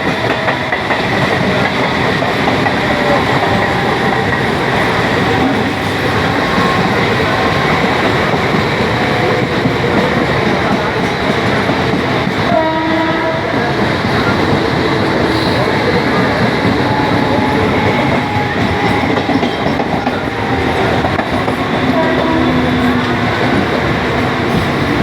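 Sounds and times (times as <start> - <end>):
train rumble with wheel clatter: 0.0 - 25.0
train horn blast: 12.4 - 25.0.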